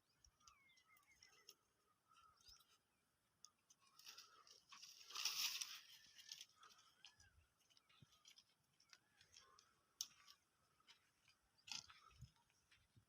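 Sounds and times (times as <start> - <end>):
faint clicks and ticks: 0.0 - 2.8, 3.4 - 5.6.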